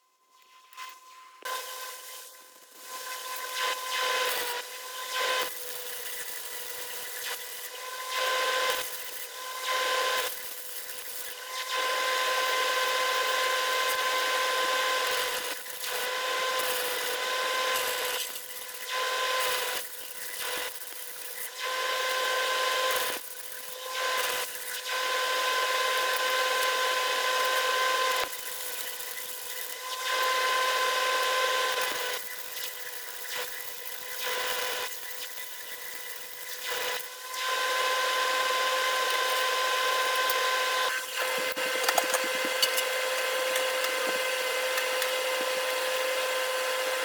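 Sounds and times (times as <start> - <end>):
power tool grinding steel: 35.5 - 47.0.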